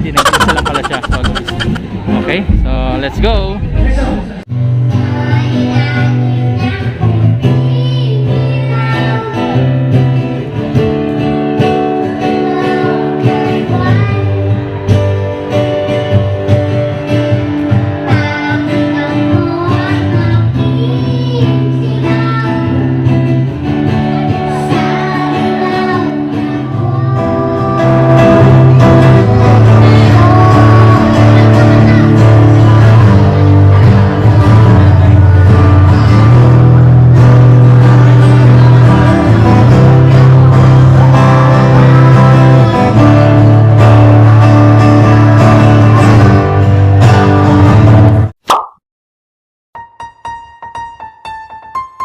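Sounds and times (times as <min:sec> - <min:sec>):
person singing: 0:00.2 - 0:01.8
strummed acoustic guitar: 0:08.4 - 0:48.2.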